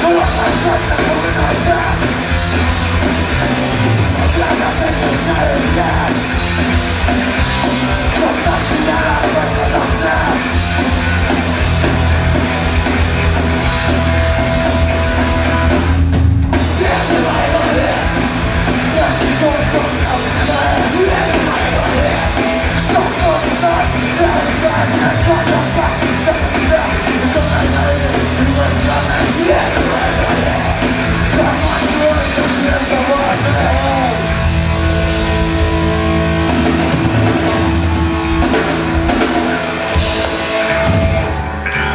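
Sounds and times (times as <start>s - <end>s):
rock band playing loud: 0.0s - 41.9s
shouted vocals: 16.7s - 34.3s.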